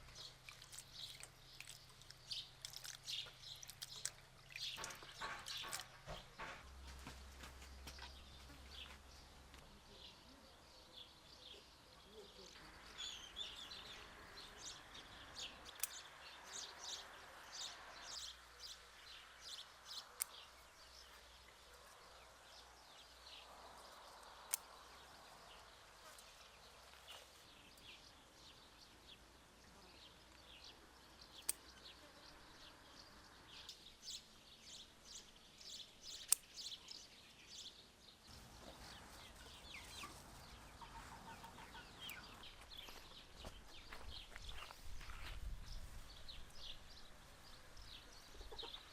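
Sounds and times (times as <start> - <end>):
birds chirping: 0.0 - 48.9
sharp clicks: 15.7 - 16.0, 36.1 - 36.7.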